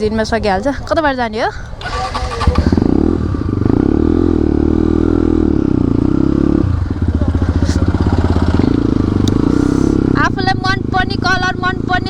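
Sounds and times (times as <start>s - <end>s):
motorcycle engine revving: 1.8s - 12.0s.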